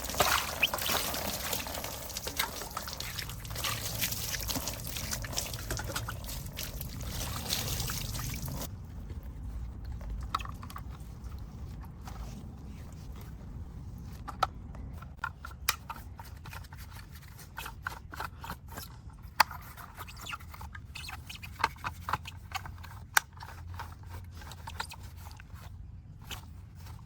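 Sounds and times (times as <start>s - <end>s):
low steady hum: 0.0s - 15.2s.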